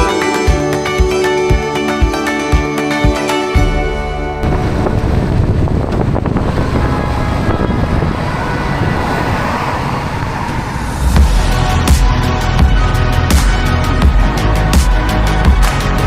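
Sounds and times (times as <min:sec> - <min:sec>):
wind noise: 0:04.4 - 0:13.2.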